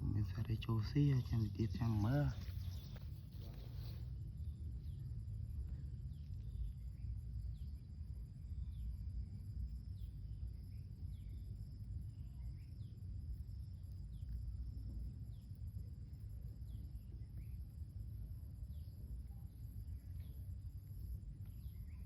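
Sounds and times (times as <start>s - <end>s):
bird chirping: 0.0s - 4.0s
insect drone: 0.0s - 22.0s
low rumble: 0.0s - 22.0s.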